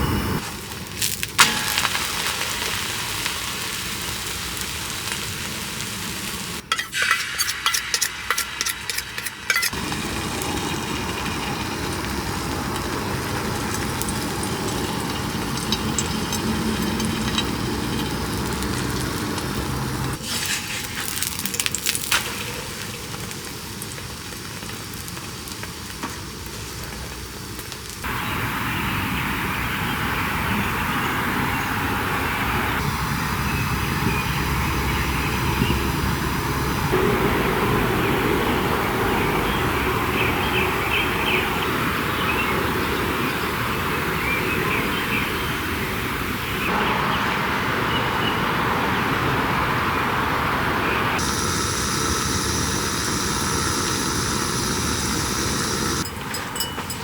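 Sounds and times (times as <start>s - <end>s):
food sizzling in a frying pan: 0.1s - 28.8s, 51.2s - 56.0s.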